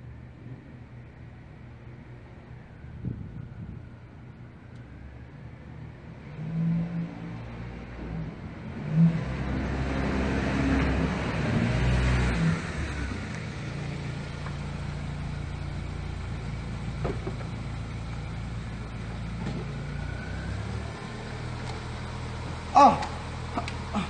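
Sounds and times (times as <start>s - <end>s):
car engine idling: 12.8s - 24.0s.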